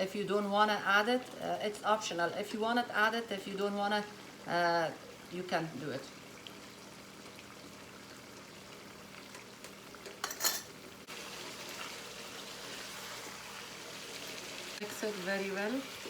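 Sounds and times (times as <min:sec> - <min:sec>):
food sizzling in a pan: 0:00.6 - 0:16.0
utensil clattering against pan: 0:09.3 - 0:10.7.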